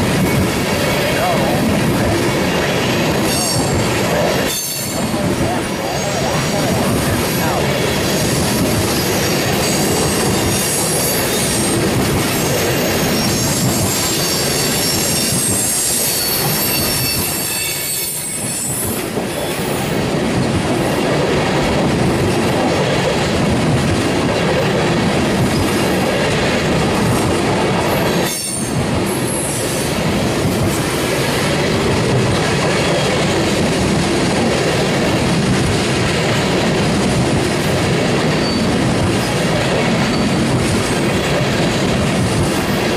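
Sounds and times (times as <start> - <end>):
high-pitched wheel squeal: 13.2 - 18.8.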